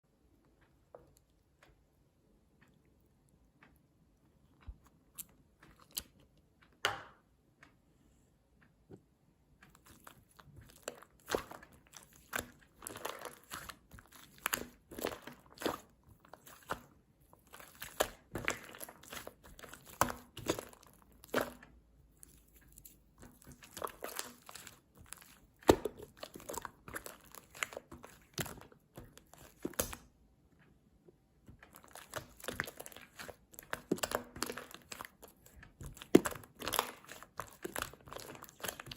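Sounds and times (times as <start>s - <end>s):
slime squishing and popping: 9.8s - 30.1s, 31.6s - 38.9s.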